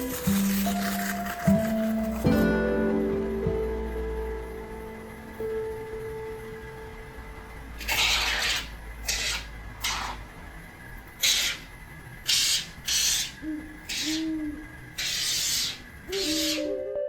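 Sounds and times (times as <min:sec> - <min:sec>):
expanding foam spray hissing: 0:00.0 - 0:02.2, 0:11.2 - 0:16.7.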